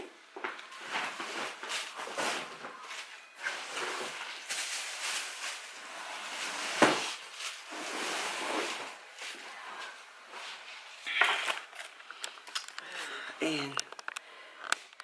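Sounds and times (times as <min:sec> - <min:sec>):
paper wrappers rustling: 0:00.6 - 0:09.4.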